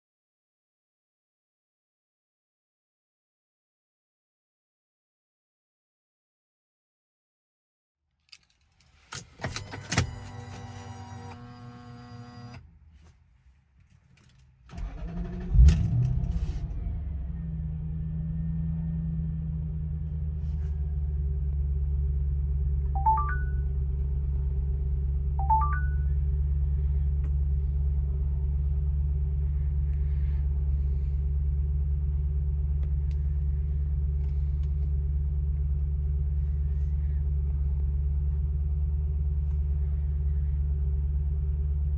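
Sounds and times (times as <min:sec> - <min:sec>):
car engine starting and idling: 0:08.7 - 0:12.8, 0:14.2 - 0:41.9
car engine cranking: 0:08.8 - 0:12.6, 0:14.2 - 0:17.3.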